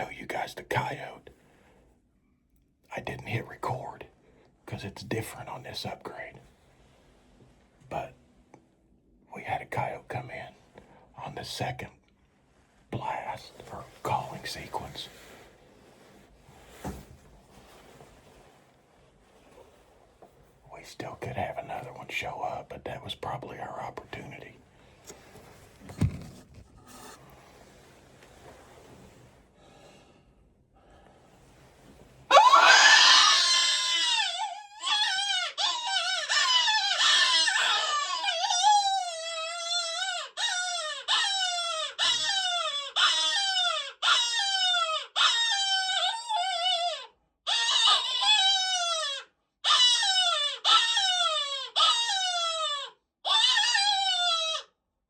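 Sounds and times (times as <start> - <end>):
electronic animal distress calls: 39.7 - 54.6.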